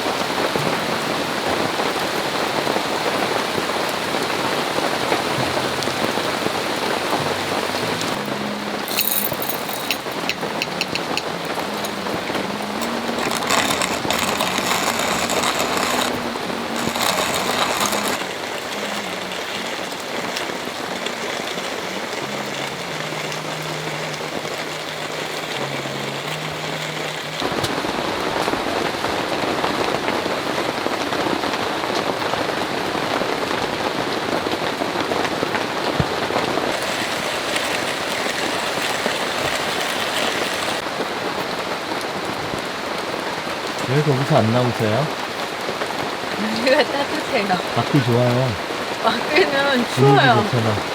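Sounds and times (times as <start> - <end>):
heavy rain falling: 0.0 - 50.9
soft low melody: 5.1 - 28.8.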